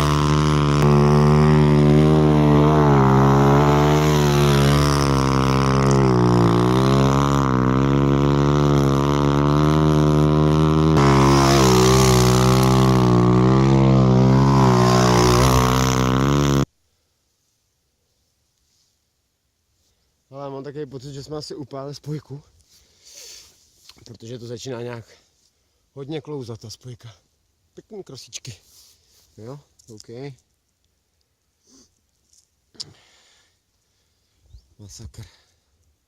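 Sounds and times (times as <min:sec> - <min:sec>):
dirt bike engine revving: 0:00.0 - 0:16.7.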